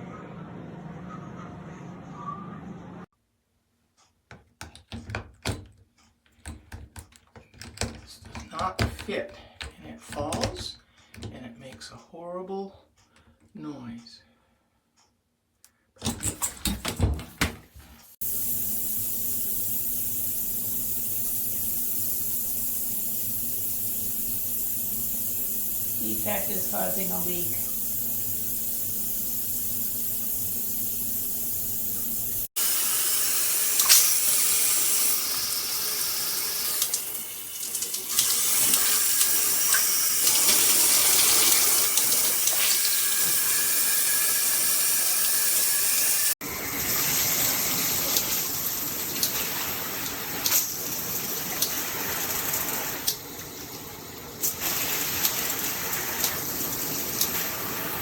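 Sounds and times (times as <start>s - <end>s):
water spraying from shower head: 18.2s - 58.0s.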